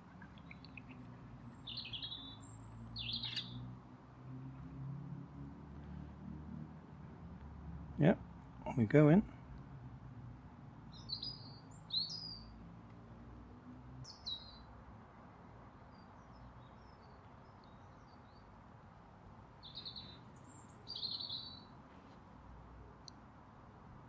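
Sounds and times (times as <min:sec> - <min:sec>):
small birds chirping: 0:00.0 - 0:03.7, 0:10.6 - 0:12.6, 0:14.0 - 0:14.7, 0:19.6 - 0:21.8.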